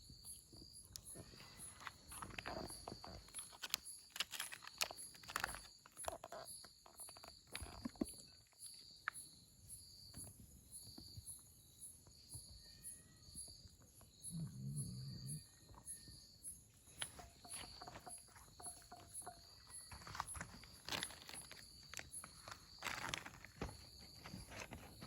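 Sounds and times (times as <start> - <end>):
faint insects chirping: 0.0 - 25.0
small clicks: 1.8 - 6.4.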